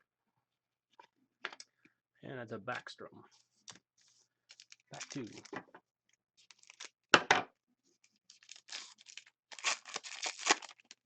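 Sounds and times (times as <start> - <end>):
wrapper crinkling and rustling: 4.5 - 5.5, 6.4 - 6.9, 8.2 - 11.0
wrapper ripping: 4.5 - 5.5, 6.5 - 6.9, 8.3 - 11.0.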